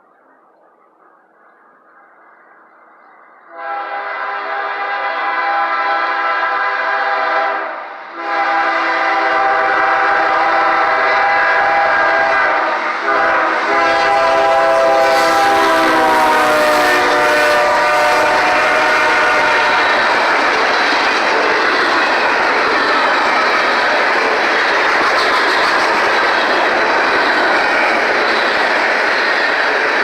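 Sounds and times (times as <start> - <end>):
train engine and wheel noise: 0.0 - 30.0
train horn blasts: 3.5 - 20.2.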